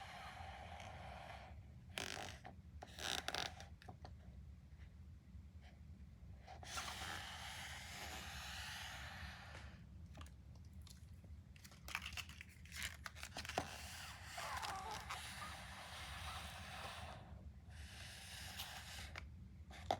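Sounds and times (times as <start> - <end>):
wrapper crinkling and clicking: 10.2 - 15.2
plastic wrapper tearing: 11.6 - 15.2.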